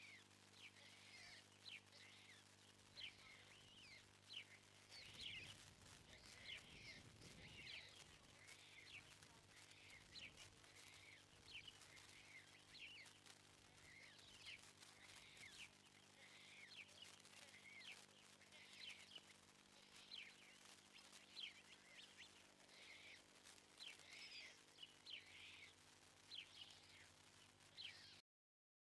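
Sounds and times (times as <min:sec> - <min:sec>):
faint bird chirps: 0:00.0 - 0:28.2
steady low hum: 0:00.0 - 0:28.2.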